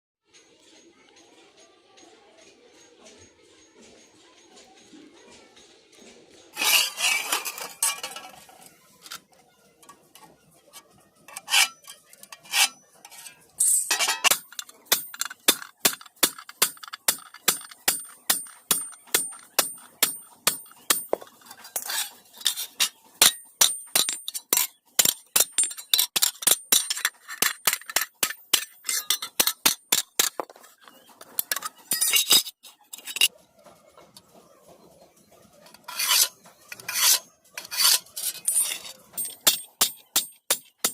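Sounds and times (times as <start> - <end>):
metal scraping: 6.5 - 40.9
hammer striking iron on anvil: 11.3 - 21.3, 22.8 - 30.5, 35.8 - 40.9.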